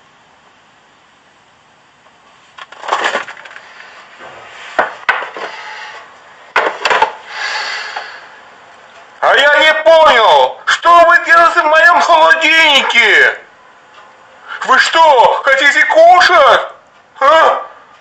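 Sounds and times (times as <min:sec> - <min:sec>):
rustling: 0:02.3 - 0:06.0.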